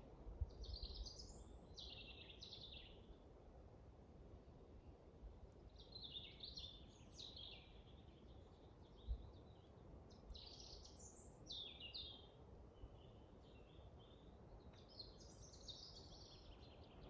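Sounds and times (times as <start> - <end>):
low rumble of wind: 0.0 - 17.0
songbirds twittering: 5.7 - 17.0.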